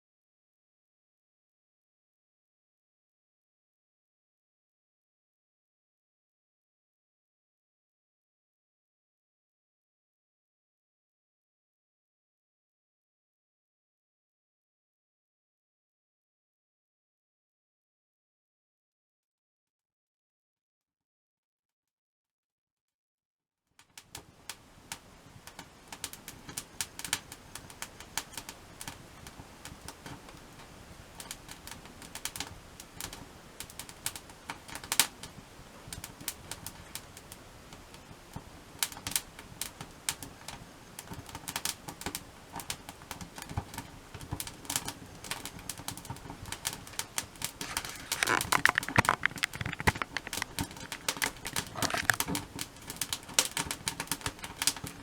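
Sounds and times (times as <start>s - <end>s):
wood fire crackling: 24.5s - 55.0s.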